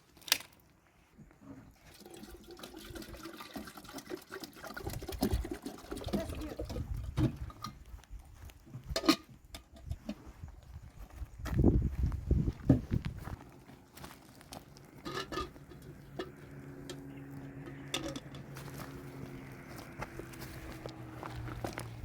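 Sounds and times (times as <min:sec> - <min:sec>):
water splashing and pouring: 0:01.8 - 0:07.6.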